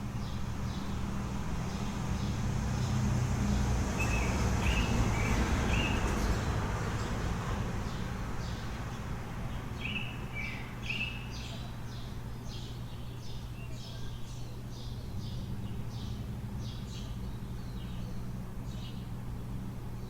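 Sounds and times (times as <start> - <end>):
low city hum: 0.0 - 20.0
small birds chirping: 0.0 - 20.0.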